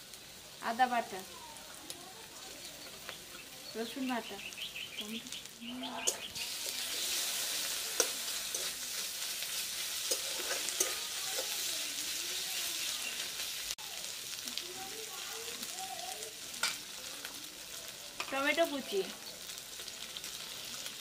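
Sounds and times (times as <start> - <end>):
onions sizzling in oil: 0.0 - 21.0
metal spatula scraping pan: 6.0 - 11.9
spatula clicking against pan: 7.9 - 8.7.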